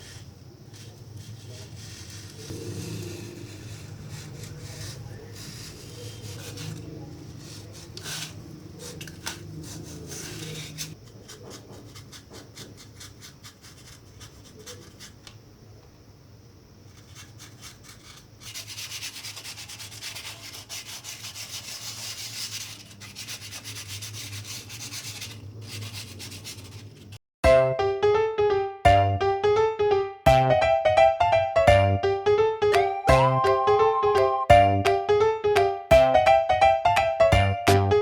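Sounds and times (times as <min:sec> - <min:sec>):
sanding styrofoam by hand: 0:00.0 - 0:15.3, 0:16.9 - 0:27.2.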